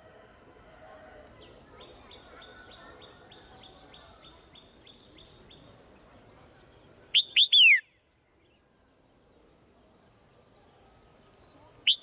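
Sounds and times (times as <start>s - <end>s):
sharp down-slurred whistles: 7.2s - 7.9s.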